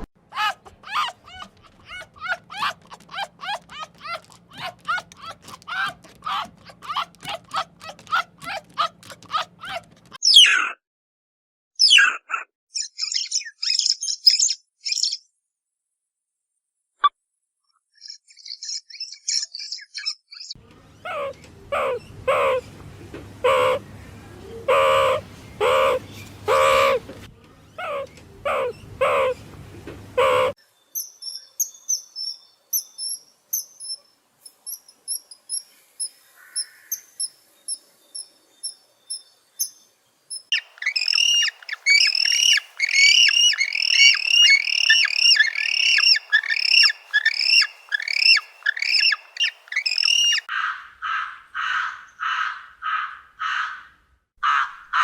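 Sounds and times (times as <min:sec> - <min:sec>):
birds calling: 0:00.0 - 0:10.6, 0:18.4 - 0:30.6, 0:40.5 - 0:55.0
high bird chirps: 0:12.7 - 0:15.3, 0:34.6 - 0:50.5
loud falling bird chirps: 0:40.5 - 0:50.5.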